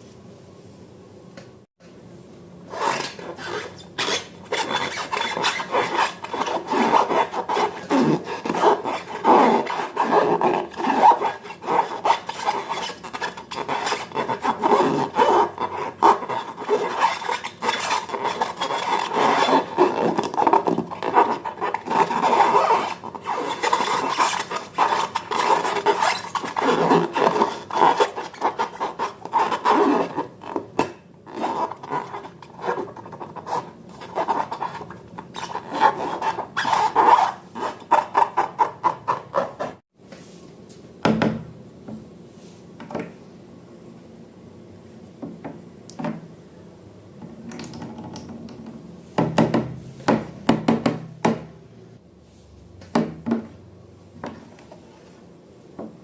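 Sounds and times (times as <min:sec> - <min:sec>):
slime being stirred by hand: 0:02.8 - 0:39.8.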